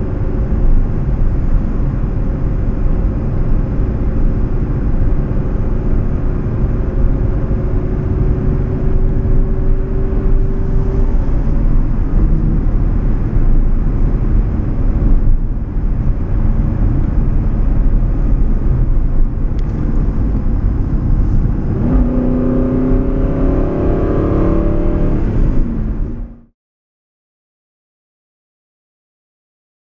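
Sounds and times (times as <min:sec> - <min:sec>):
car engine and road noise: 0:00.0 - 0:26.5.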